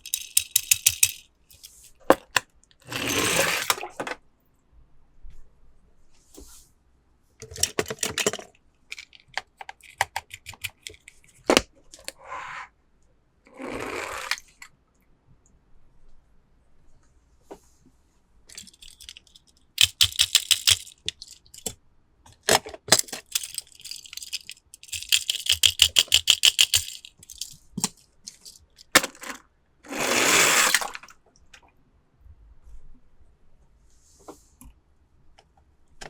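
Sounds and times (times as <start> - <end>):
plastic toy cars clicking: 0.0 - 4.2, 7.4 - 12.2, 14.0 - 14.7, 18.5 - 31.7.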